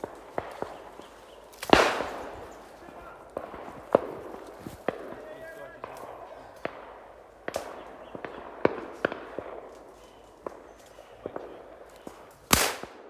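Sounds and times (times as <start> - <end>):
distant shotgun shots: 0.0 - 13.0
loud close shotgun blast: 1.6 - 2.6, 12.5 - 13.0.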